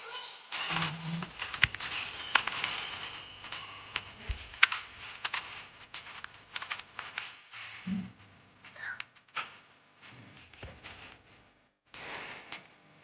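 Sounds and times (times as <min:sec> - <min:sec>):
steady hiss: 0:00.6 - 0:08.2.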